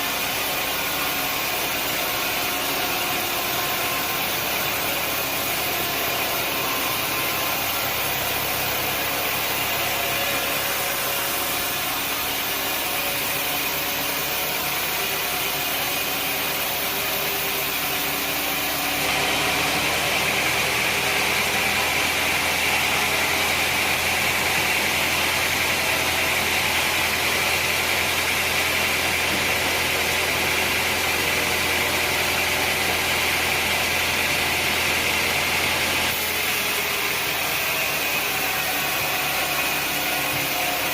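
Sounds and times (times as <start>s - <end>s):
sawmill machinery running: 0.0s - 40.9s.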